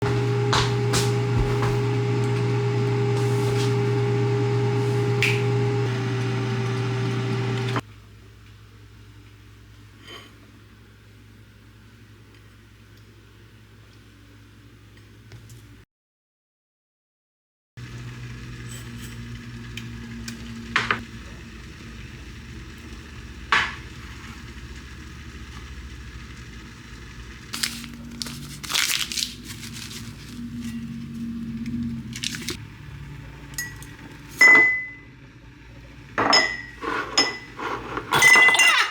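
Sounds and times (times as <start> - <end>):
microwave oven humming: 0.0 - 9.8, 17.8 - 38.4
crinkling handling noise: 27.5 - 32.6.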